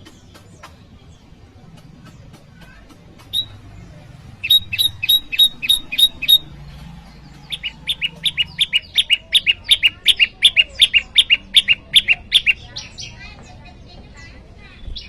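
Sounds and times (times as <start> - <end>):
songbird sharp two-part chirps: 3.2 - 3.7, 4.4 - 6.5.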